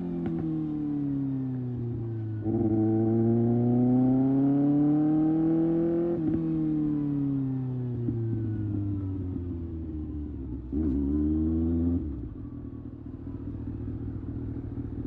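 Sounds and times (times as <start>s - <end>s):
motorcycle engine revving: 1.8s - 6.6s.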